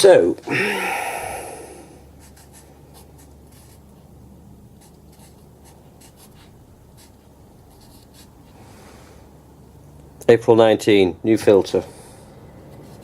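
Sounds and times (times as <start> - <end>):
marker pen scratching: 2.1 - 8.6.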